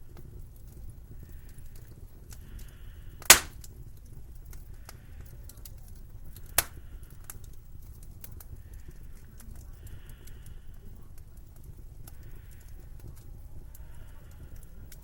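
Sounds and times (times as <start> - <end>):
wood fire crackling: 0.0 - 15.0
loud sharp pops: 3.3 - 3.6, 6.6 - 6.8.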